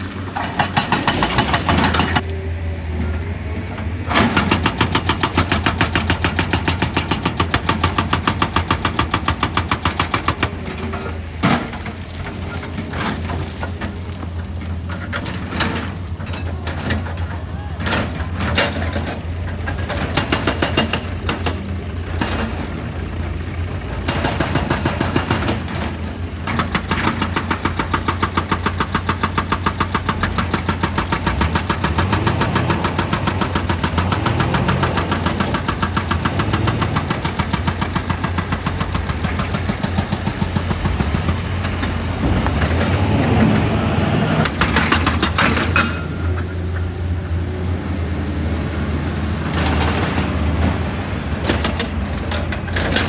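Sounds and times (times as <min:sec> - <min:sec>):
excavator engine running: 0:00.0 - 0:53.0
heavy irregular knocks: 0:03.2 - 0:47.3.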